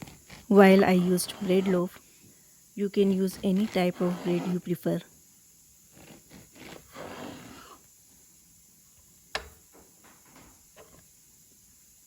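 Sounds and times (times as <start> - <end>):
rasping scraping strokes: 0.0 - 1.9, 3.2 - 4.7, 6.0 - 7.8.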